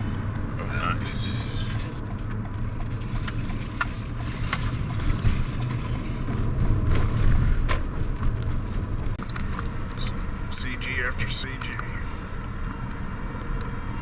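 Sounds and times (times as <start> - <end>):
car road noise rumble: 0.0 - 14.0
sharp ticks: 9.2 - 9.7.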